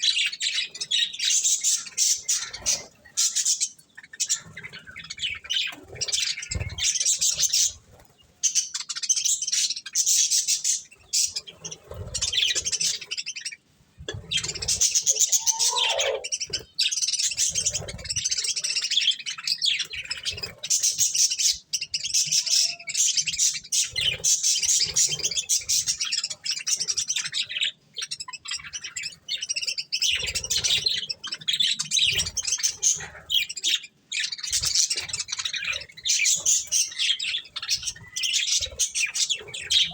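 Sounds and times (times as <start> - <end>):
budgerigars chirping: 14.1 - 39.9.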